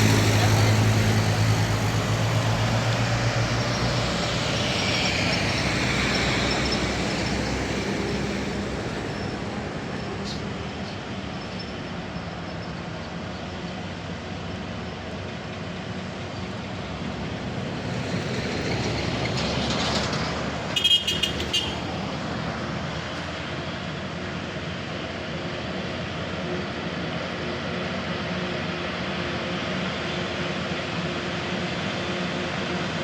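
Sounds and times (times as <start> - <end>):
vehicle passing: 0.0 - 11.3, 16.0 - 23.4
truck engines running: 0.0 - 33.0.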